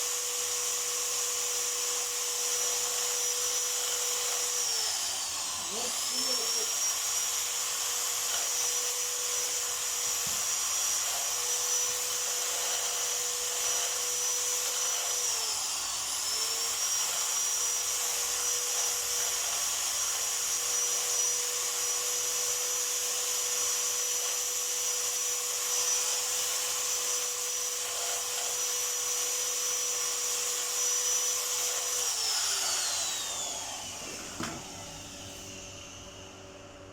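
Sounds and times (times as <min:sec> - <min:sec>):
small electric motor whining: 0:00.0 - 0:36.8.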